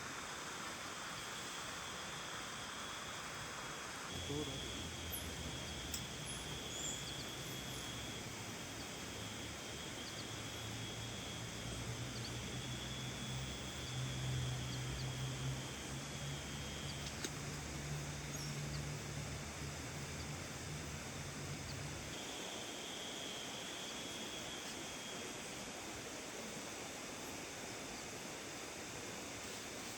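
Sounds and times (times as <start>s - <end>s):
rain hissing on a tent: 0.0s - 6.6s
low droning hum: 0.0s - 25.4s
thin high-pitched buzz: 0.2s - 29.9s.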